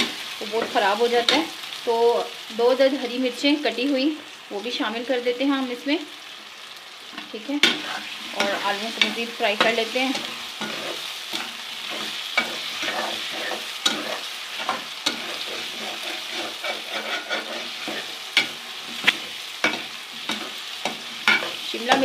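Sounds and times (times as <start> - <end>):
vegetables sizzling in a pan: 0.0 - 22.0.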